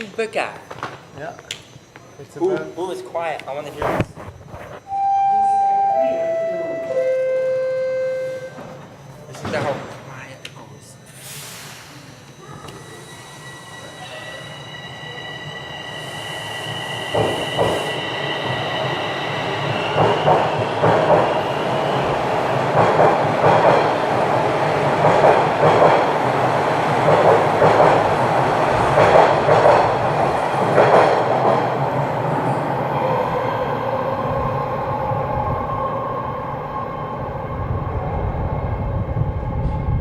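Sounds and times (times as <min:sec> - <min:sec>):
train rumble: 0:15.6 - 0:40.0.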